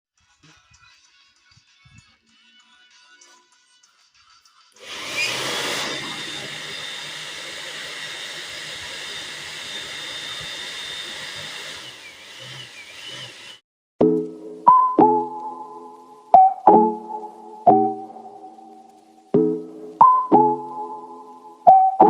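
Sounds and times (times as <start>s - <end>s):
electric air blower running: 4.8s - 13.6s.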